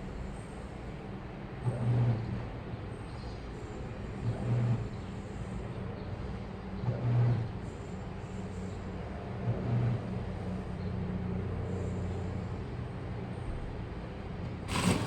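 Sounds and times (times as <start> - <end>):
washing machine low surge: 14.6 - 15.0
washing machine motor hum: 14.7 - 15.0.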